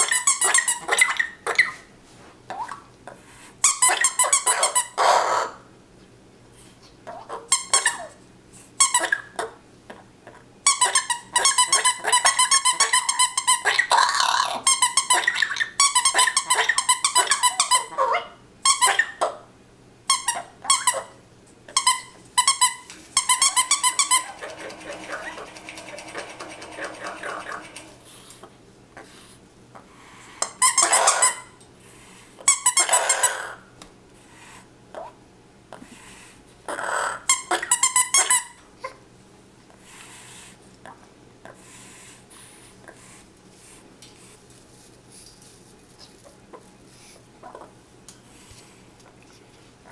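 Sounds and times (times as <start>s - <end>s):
parrot and squeak toy squeaking: 0.0s - 1.8s, 10.7s - 14.0s, 21.7s - 25.5s
rubber dog toy squeaking: 21.7s - 24.4s.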